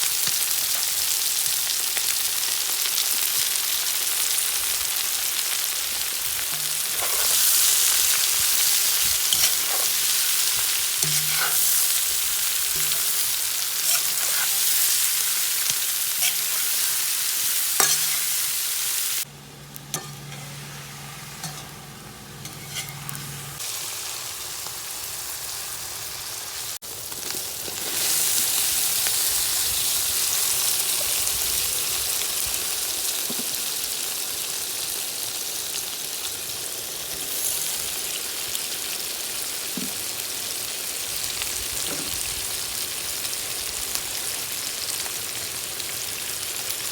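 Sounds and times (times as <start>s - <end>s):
food sizzling in hot oil: 0.0s - 46.9s.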